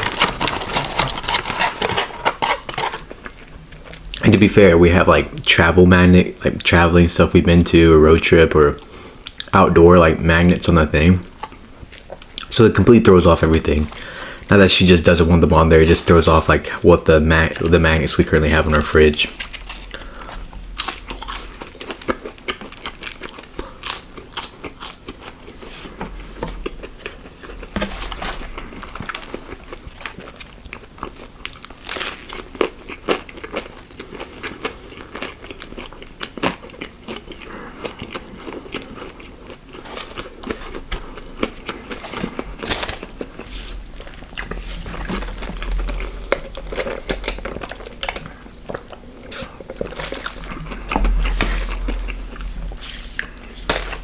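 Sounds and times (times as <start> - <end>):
person chewing crunchy food: 0.0 - 4.2, 17.0 - 54.0.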